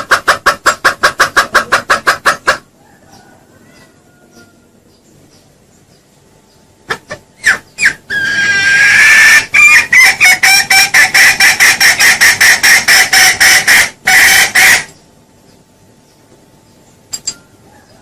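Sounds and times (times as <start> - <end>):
junglefowl clucking: 0.0 - 4.8, 6.8 - 15.0.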